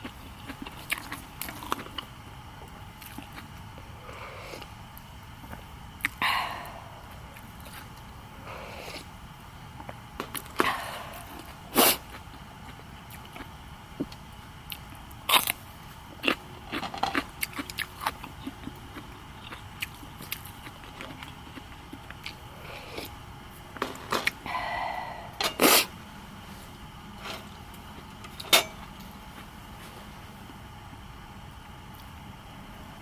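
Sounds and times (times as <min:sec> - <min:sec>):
person chewing: 0:00.0 - 0:03.5, 0:05.5 - 0:09.1, 0:09.8 - 0:15.6, 0:16.2 - 0:25.9.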